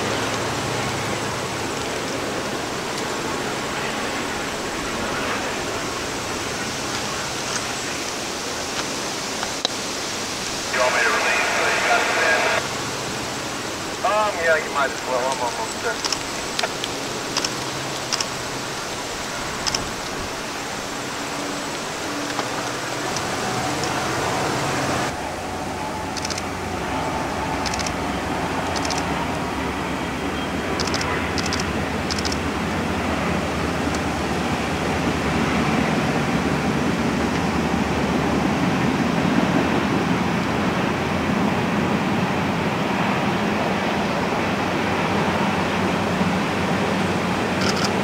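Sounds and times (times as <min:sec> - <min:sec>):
faint locomotive engine hum: 0:00.0 - 0:48.0
train rumbling over bridge: 0:00.0 - 0:48.0
sharp clicks: 0:14.9 - 0:18.4, 0:19.6 - 0:20.1, 0:26.1 - 0:26.5, 0:27.6 - 0:28.0, 0:28.6 - 0:29.1, 0:30.8 - 0:32.4, 0:47.6 - 0:48.0.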